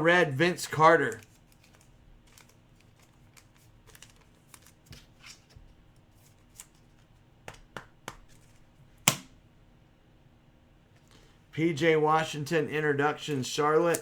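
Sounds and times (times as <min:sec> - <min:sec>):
trading cards clicking and rustling: 0:00.7 - 0:09.2, 0:13.2 - 0:14.0.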